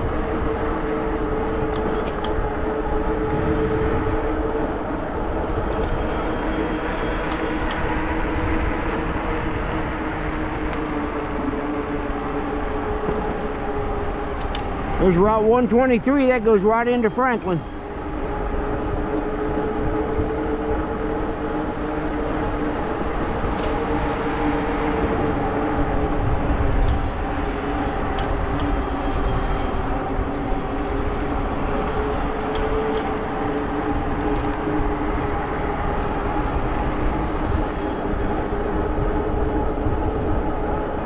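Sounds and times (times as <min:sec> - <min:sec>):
electric motor whine: 0:00.0 - 0:15.0
wind: 0:00.0 - 0:41.0.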